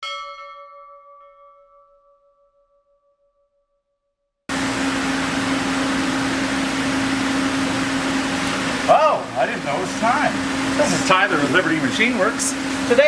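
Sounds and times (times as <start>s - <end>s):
bell-like chime: 0.0s - 3.6s
machine hum with hiss: 4.5s - 13.0s.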